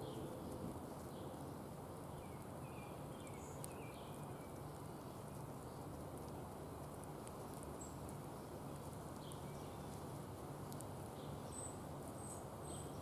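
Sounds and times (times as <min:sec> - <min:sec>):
small birds chirping: 0:00.0 - 0:13.0
light ticks: 0:03.3 - 0:03.8, 0:05.4 - 0:11.2.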